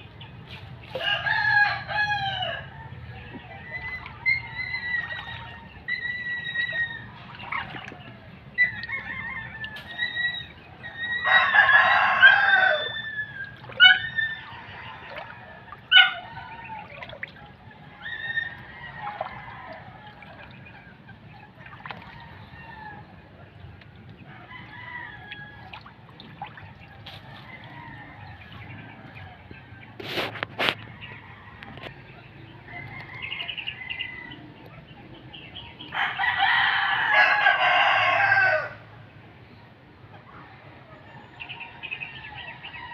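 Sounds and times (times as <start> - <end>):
chickens clucking: 0.0 - 38.9
rooster crowing call: 11.0 - 14.0, 35.9 - 38.8.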